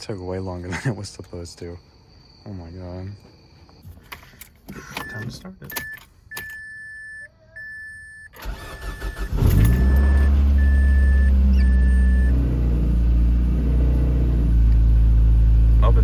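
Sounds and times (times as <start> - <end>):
car warning chime beeping: 4.7 - 12.4
car engine cranking and idling: 8.3 - 16.0.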